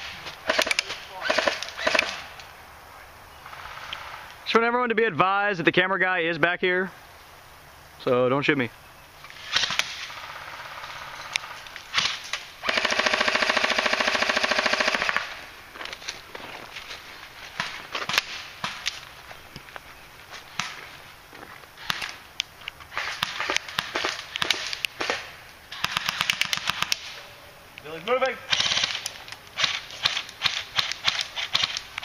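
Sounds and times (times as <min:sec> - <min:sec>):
airsoft gun full-auto burst: 0:09.4 - 0:15.4, 0:22.9 - 0:27.1, 0:28.5 - 0:29.0, 0:29.6 - 0:31.8.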